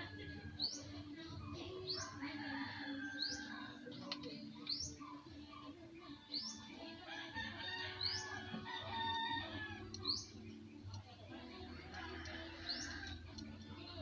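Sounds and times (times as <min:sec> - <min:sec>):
rooster crowing: 0:00.0 - 0:00.7, 0:02.0 - 0:03.7, 0:07.0 - 0:10.0, 0:11.7 - 0:13.5
chickens clucking: 0:00.0 - 0:14.0.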